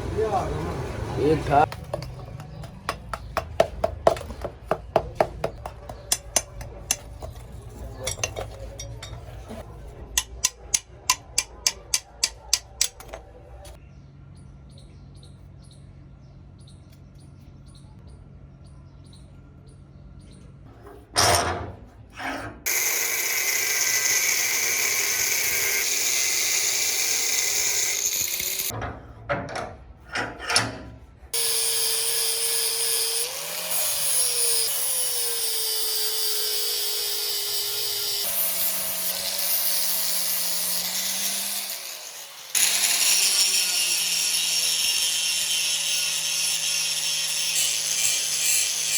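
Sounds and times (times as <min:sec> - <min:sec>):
rapid sharp taps: 0:01.7 - 0:06.7.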